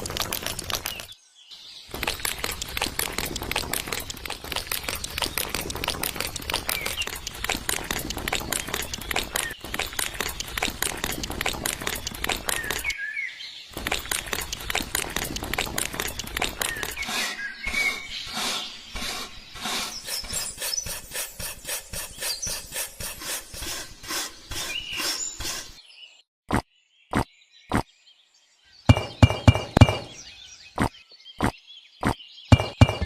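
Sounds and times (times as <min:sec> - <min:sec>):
rapid tapping and scraping: 0:00.0 - 0:01.2, 0:01.9 - 0:12.9, 0:13.7 - 0:25.7, 0:28.9 - 0:30.2, 0:32.5 - 0:33.0
sharp knocks with ringing tone: 0:28.9 - 0:30.2, 0:32.5 - 0:33.0.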